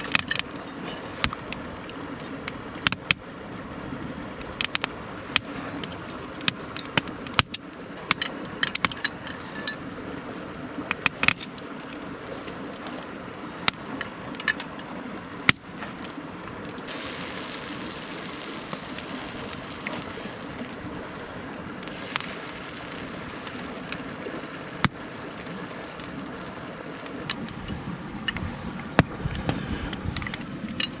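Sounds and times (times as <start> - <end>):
fire crackling: 0.0 - 2.2, 15.4 - 31.0
mountain stream rushing: 0.0 - 4.4, 11.6 - 31.0
food sizzling on hot iron: 16.6 - 27.6.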